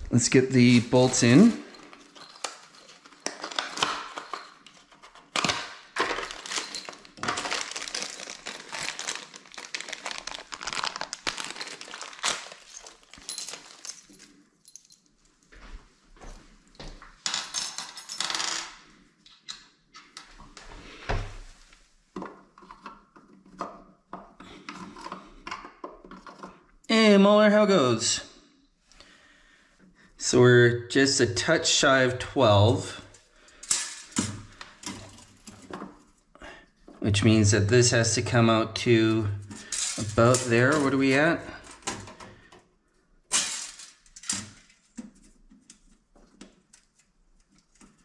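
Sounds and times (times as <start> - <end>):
rustling: 0.9 - 15.0
metal hardware clinking: 1.0 - 4.8.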